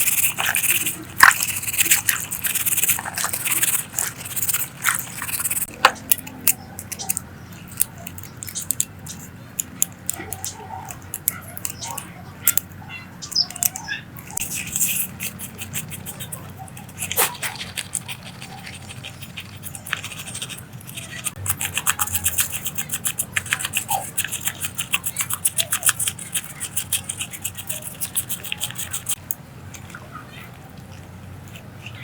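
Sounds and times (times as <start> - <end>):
rapid rubbing or scraping strokes: 0.0 - 5.7.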